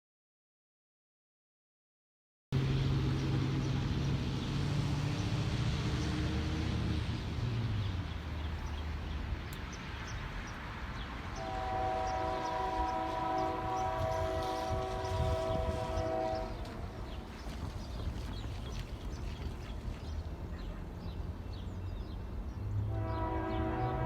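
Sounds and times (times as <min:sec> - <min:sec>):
diesel locomotive engines droning: 0:02.6 - 0:24.0
locomotive air horn: 0:11.3 - 0:16.9, 0:22.9 - 0:24.0.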